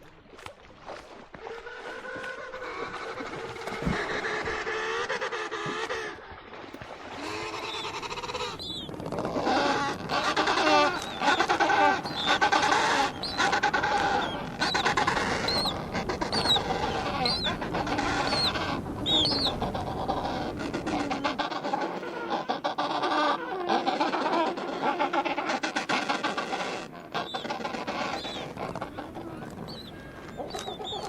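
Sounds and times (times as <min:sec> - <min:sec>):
flock of birds nasal calls: 0:07.1 - 0:31.0.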